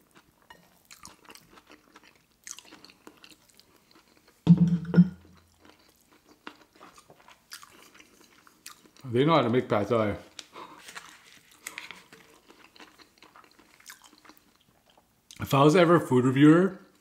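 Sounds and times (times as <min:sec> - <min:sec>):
wet chewing and mouth clicks: 0:00.0 - 0:04.4, 0:05.2 - 0:09.1, 0:10.3 - 0:15.4.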